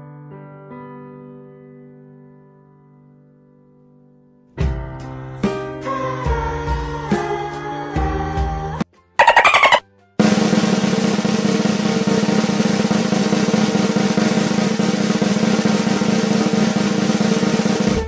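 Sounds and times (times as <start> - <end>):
snare drum roll: 9.2 - 18.0.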